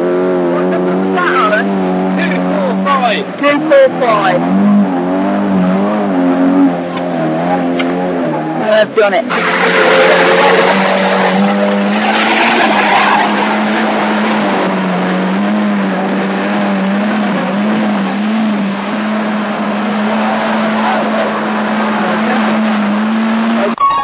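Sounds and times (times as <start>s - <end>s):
car engine revving high: 0.0s - 24.0s
guitar music: 23.7s - 24.0s.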